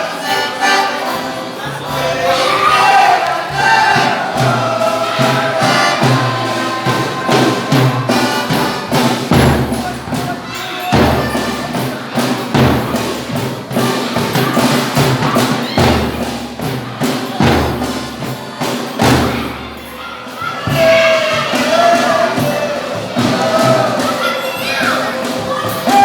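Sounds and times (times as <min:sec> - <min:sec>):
folk music: 0:00.0 - 0:16.0
drum beat: 0:00.0 - 0:26.0.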